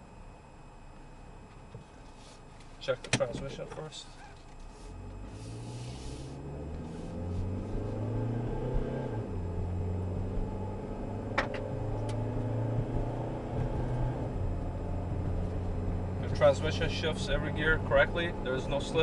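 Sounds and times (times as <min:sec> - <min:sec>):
car engine accelerating: 0:04.6 - 0:19.0.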